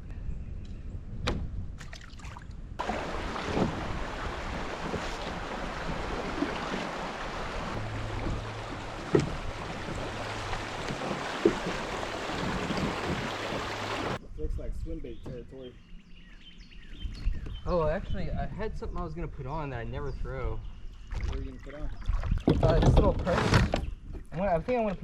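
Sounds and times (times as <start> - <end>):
wind: 0.0 - 25.0
river water rushing: 2.8 - 14.2
sharp knocks: 7.8 - 14.2.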